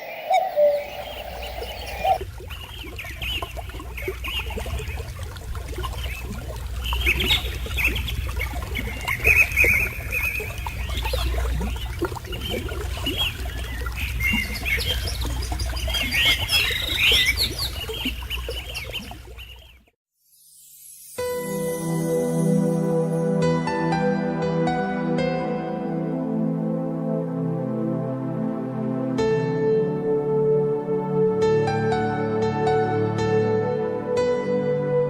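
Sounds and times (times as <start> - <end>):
wild birds calling and chirping: 0.0 - 5.1, 6.0 - 19.8.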